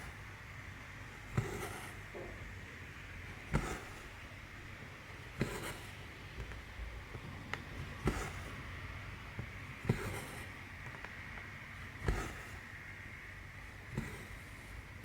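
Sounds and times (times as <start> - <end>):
needle punching through canvas: 1.2 - 2.1, 3.4 - 4.2, 5.3 - 6.1, 7.9 - 8.6, 12.0 - 12.7
thread rasping through fabric: 1.3 - 2.1, 3.5 - 4.1, 5.4 - 6.0, 9.8 - 10.6, 12.0 - 12.7, 13.9 - 14.6.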